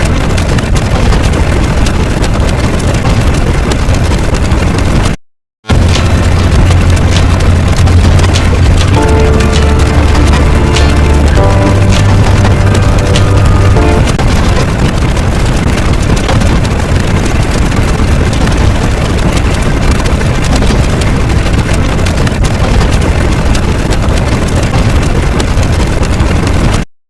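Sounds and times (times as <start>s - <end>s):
loud low engine rumble: 5.7s - 15.3s.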